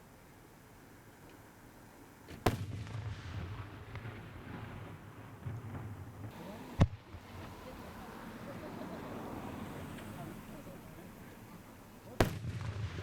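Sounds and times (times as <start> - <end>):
fireworks booming: 2.3 - 10.0, 12.1 - 13.0.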